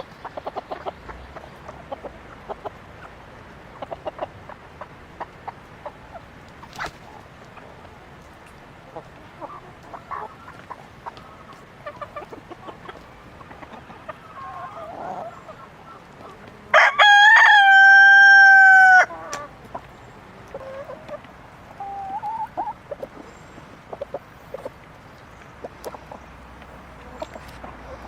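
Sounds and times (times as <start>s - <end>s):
chickens clucking: 0.0s - 28.0s
rooster crowing: 16.7s - 19.2s.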